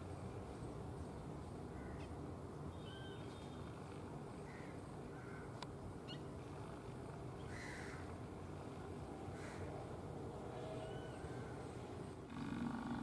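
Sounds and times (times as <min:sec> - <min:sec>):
harsh crow-like bird call: 0:07.5 - 0:08.1, 0:09.4 - 0:09.7.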